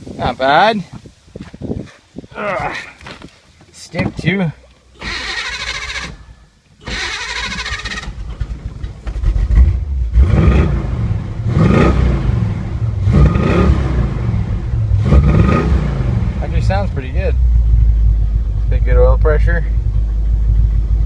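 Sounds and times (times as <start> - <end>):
car engine cranking and starting: 4.8 - 21.0
car engine revving: 5.0 - 21.0.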